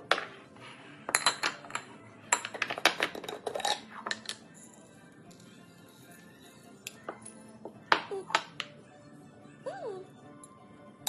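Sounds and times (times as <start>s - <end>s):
kitchenware clinking and clattering: 0.0s - 4.8s
background music: 0.0s - 11.0s.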